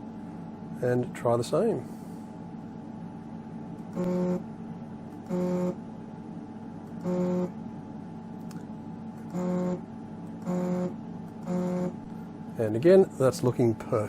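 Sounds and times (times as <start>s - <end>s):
steady low hum: 0.0s - 14.0s
stepper motor buzzing: 3.9s - 4.5s, 5.2s - 5.8s, 6.9s - 7.6s, 9.2s - 12.0s.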